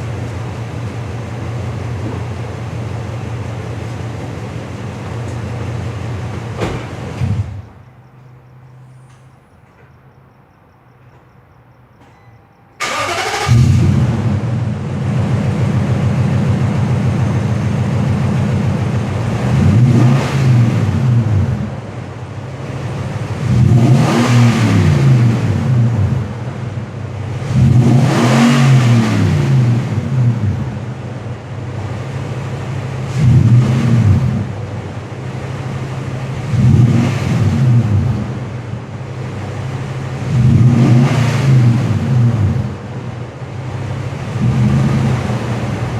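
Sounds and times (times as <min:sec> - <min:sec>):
engine idling and revving: 0:00.0 - 0:09.9, 0:12.8 - 0:45.9
engine starting: 0:12.8 - 0:14.4.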